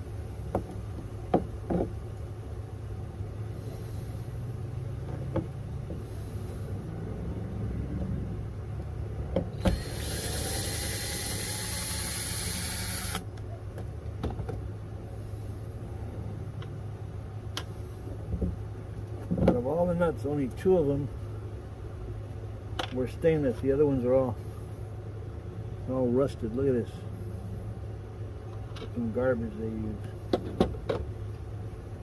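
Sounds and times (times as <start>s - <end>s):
steady low hum: 0.0s - 32.0s
small motor whirring: 9.6s - 13.3s.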